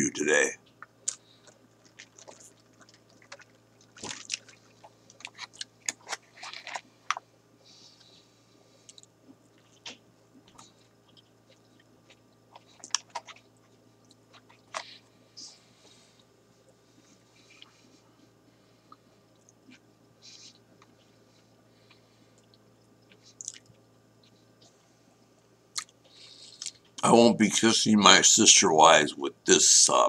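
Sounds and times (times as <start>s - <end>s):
faint low hum: 0.0s - 30.0s
person chewing with wet smacks: 0.8s - 7.2s, 8.8s - 14.8s, 21.9s - 23.8s, 25.7s - 26.9s.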